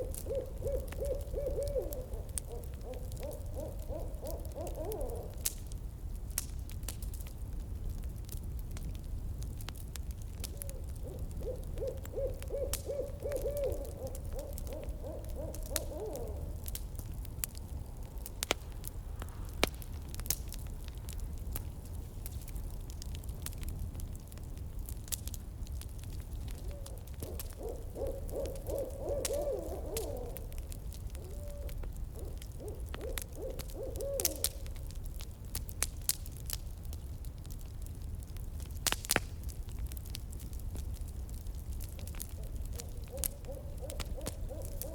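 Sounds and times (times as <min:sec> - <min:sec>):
owl hooting: 0:00.0 - 0:05.5, 0:10.5 - 0:16.8, 0:26.5 - 0:34.7, 0:42.3 - 0:44.9
campfire crackling and popping: 0:00.0 - 0:44.9.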